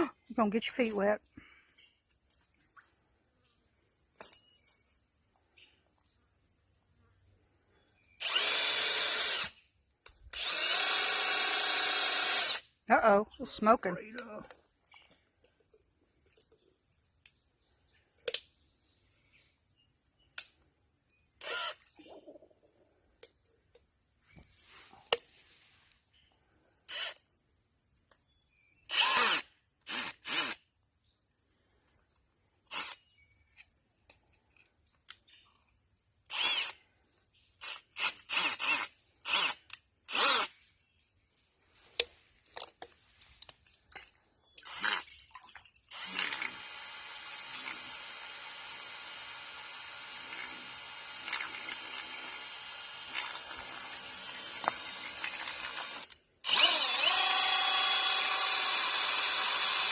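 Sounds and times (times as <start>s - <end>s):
small motor running: 8.2s - 9.6s, 10.3s - 12.7s, 45.9s - 59.9s.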